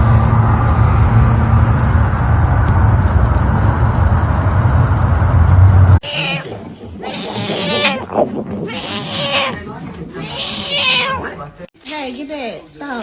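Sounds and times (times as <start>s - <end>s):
loud low rumble with hiss: 0.0s - 6.0s
animal cry: 6.0s - 11.4s.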